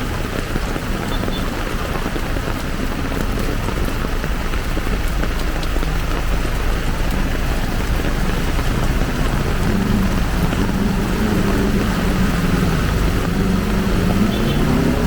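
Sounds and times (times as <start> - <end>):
heavy rain hissing: 0.0 - 15.0
low rumble: 3.2 - 14.3.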